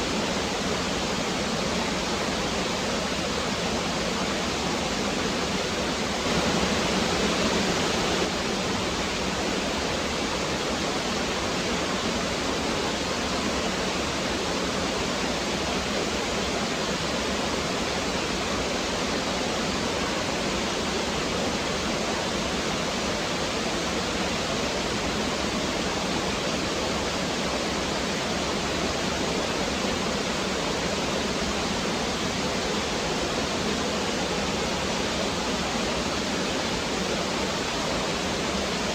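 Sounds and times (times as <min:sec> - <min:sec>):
stream flowing over rocks: 0:06.2 - 0:08.6.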